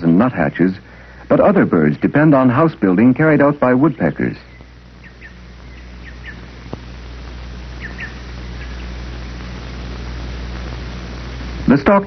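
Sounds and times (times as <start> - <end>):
bird chirping: 0.0 - 6.6, 7.7 - 9.0
low hum: 0.0 - 12.0.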